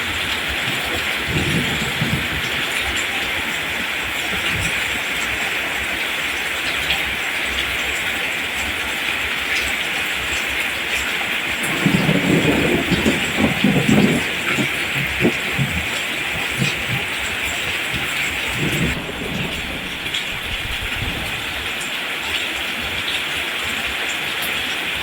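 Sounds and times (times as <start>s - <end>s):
steady rain falling: 0.0s - 25.0s
irregular low rumbling: 11.6s - 21.8s.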